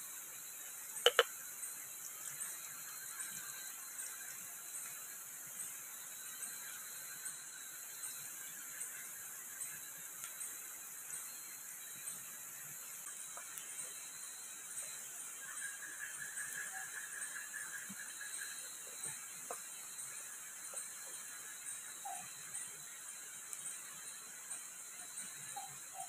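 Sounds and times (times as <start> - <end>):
food frying in wok: 0.1 - 25.9
faint high chirp: 13.0 - 26.0.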